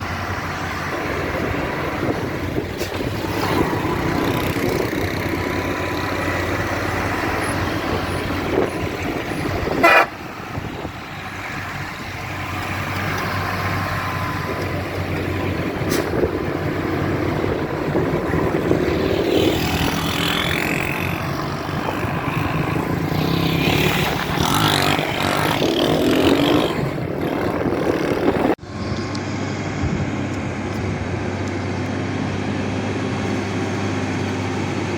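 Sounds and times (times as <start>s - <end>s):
truck engines under load: 0.0s - 34.9s
truck horns tooting: 4.6s - 11.4s.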